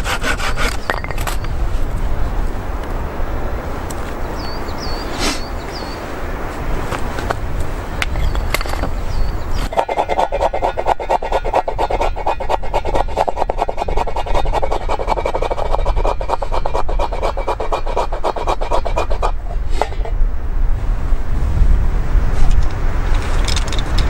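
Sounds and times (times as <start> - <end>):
hand saw cutting wood: 0.0 - 1.4, 9.5 - 20.0.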